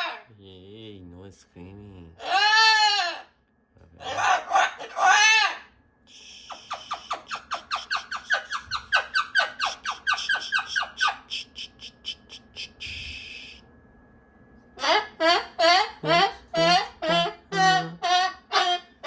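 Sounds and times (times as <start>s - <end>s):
cockatoo raspy hiss: 6.1s - 8.2s, 9.7s - 13.6s
cockatoo chirping: 6.3s - 13.6s, 14.8s - 19.0s.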